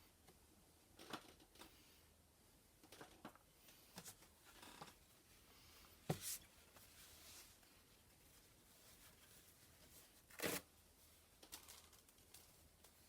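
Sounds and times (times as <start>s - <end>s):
faint rubbing and handling: 3.7s - 11.4s.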